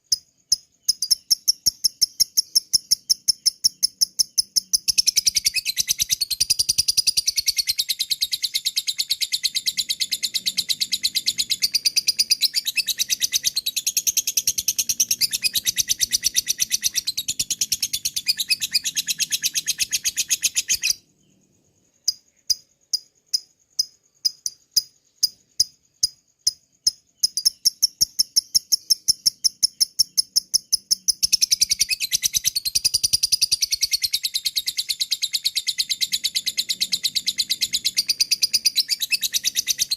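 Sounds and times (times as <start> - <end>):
lovebird chattering trill: 0.0 - 21.0, 24.2 - 39.9
bird ticking calls: 0.0 - 21.4, 22.0 - 39.9.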